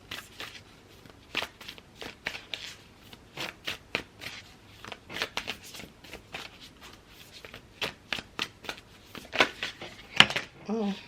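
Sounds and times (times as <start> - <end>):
cards being shuffled by hand: 0.0 - 11.0.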